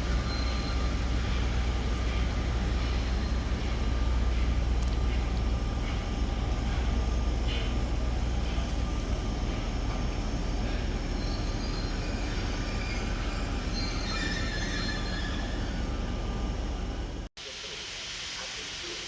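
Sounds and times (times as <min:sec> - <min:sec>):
train rumbling on rails: 0:00.0 - 0:17.3
high-pitched wheel squeal: 0:11.2 - 0:15.9.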